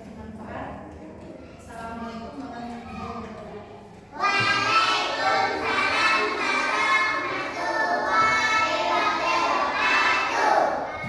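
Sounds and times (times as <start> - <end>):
children singing in unison: 4.2 - 11.0.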